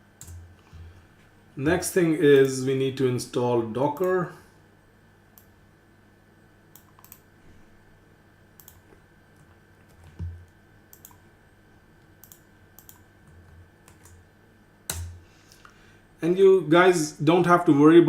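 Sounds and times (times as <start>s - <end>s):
faint steady hum: 0.0s - 18.0s
computer keyboard keys clicking: 6.8s - 7.2s, 8.6s - 10.3s, 10.9s - 11.2s, 12.2s - 14.2s.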